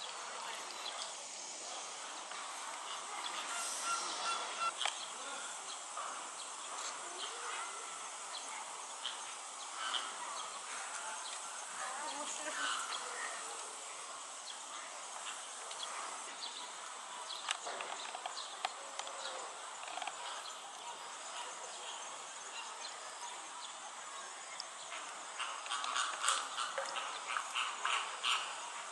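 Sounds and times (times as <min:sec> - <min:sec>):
faint distant voices: 0:00.0 - 0:28.9
insect buzzing: 0:00.5 - 0:10.6.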